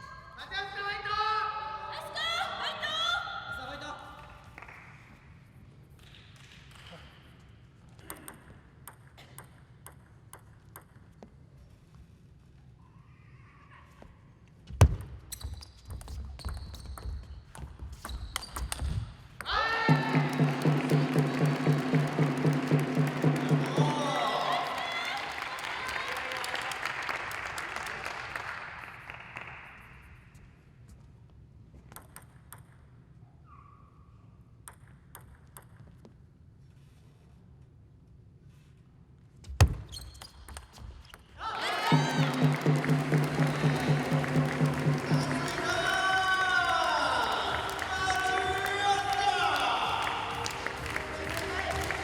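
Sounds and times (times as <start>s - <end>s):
table tennis ball bouncing: 8.0s - 11.3s, 14.8s - 24.6s, 31.9s - 32.9s, 34.6s - 36.1s, 41.9s - 46.0s
table tennis ball knocks and clicks: 8.0s - 11.3s, 31.9s - 32.8s, 34.7s - 36.1s
shoe squeaks: 15.1s - 19.3s, 33.3s - 34.4s, 39.4s - 41.4s.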